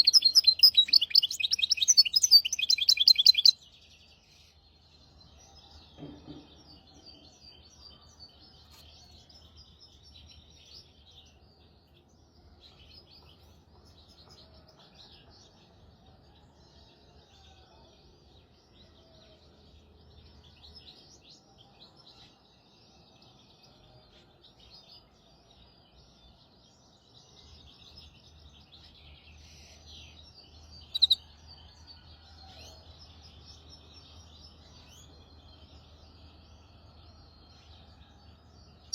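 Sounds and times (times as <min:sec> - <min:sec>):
finch twittering song: 0:00.0 - 0:15.3, 0:19.4 - 0:31.8.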